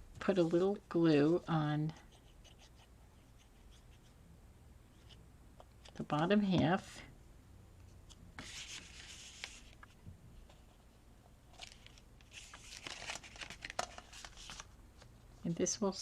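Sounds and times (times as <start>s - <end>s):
paper rubbing and rustling: 8.4s - 10.6s, 11.5s - 15.1s.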